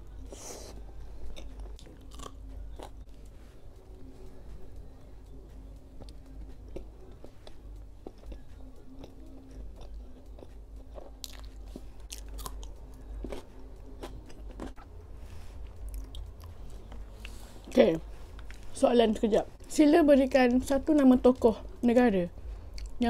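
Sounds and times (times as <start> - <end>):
chewing a soft sandwich: 6.0 - 17.4.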